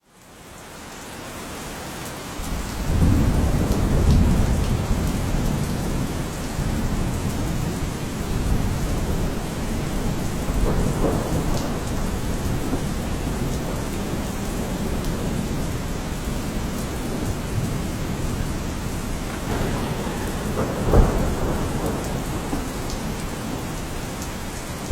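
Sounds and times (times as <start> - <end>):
steady rain falling: 0.0 - 24.9
low rumble of thunder: 2.4 - 24.9.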